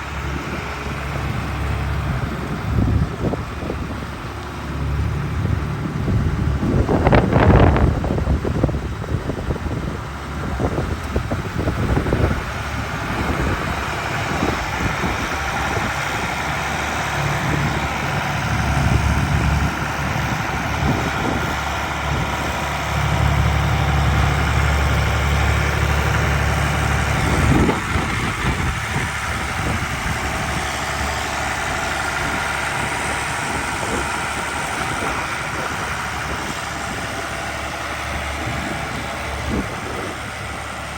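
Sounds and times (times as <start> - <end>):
tractor diesel engine idling: 0.0 - 40.9.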